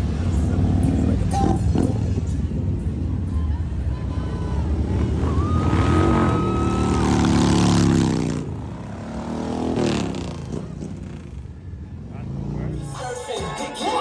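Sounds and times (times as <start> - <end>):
motorcycle engine revving: 0.0 - 3.4, 4.0 - 13.2.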